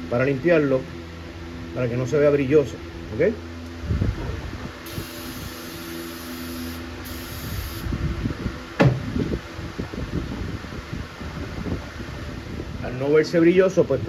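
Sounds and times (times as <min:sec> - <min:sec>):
aerosol spray hissing: 0:04.8 - 0:07.9
sharp knock: 0:08.8 - 0:09.1.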